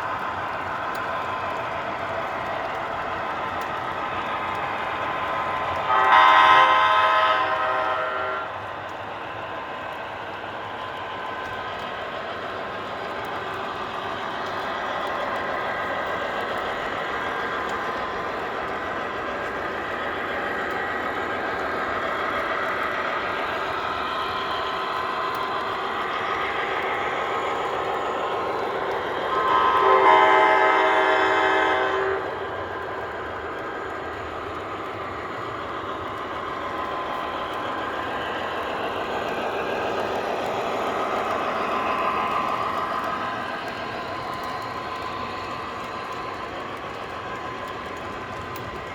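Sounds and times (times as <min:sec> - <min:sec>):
locomotive horn blast: 0:05.9 - 0:08.5, 0:29.4 - 0:32.3.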